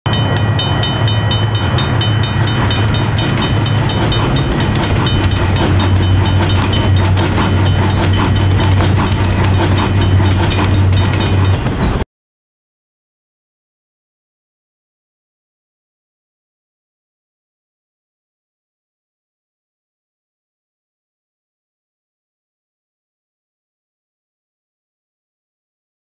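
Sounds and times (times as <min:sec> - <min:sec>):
train rumble: 0:00.1 - 0:12.0
wheels clicking over rail joints: 0:00.1 - 0:12.0.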